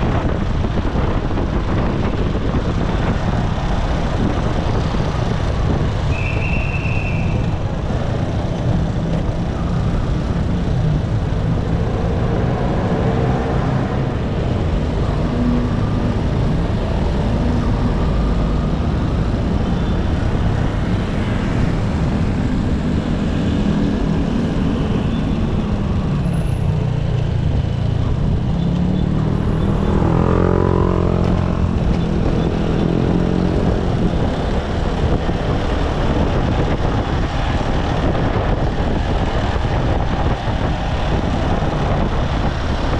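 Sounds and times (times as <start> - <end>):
road and wind noise: 0.0 - 42.9.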